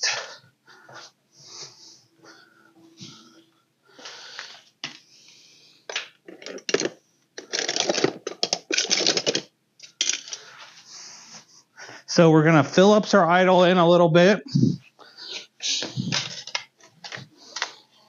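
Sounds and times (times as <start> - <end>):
hand tools clicking and clattering: 15.8 - 17.8.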